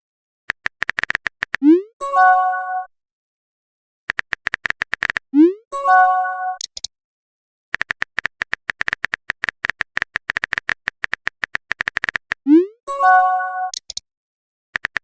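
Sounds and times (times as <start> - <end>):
keyboard typing clicks: 0.5 - 1.6, 4.1 - 5.2, 6.6 - 6.9, 7.8 - 12.5, 13.7 - 14.0, 14.8 - 15.0
message chime: 12.9 - 13.8.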